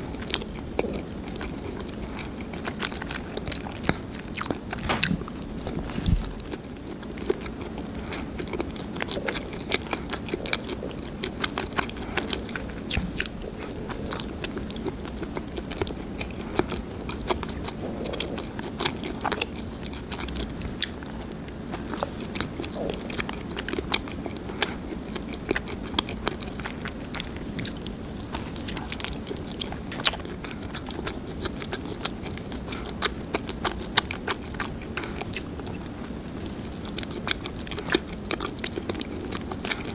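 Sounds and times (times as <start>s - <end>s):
chewing crusty bread: 0.0s - 39.9s
crisp crust crackles: 3.0s - 32.4s.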